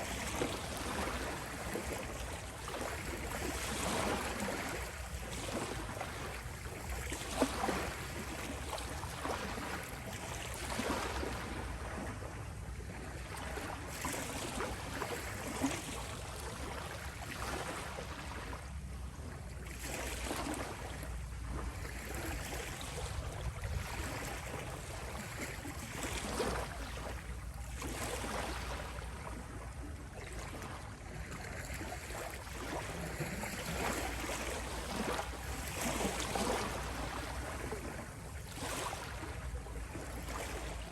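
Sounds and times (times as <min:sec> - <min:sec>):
ocean waves washing ashore: 0:31.7 - 0:40.9.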